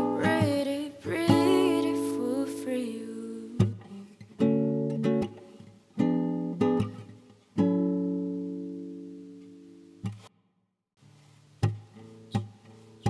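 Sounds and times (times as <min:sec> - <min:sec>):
acoustic guitar strumming chords: 0:00.0 - 0:10.3.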